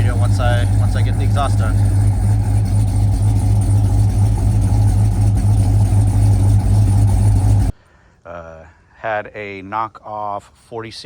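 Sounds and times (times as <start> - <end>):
car engine idling: 0.0 - 7.7.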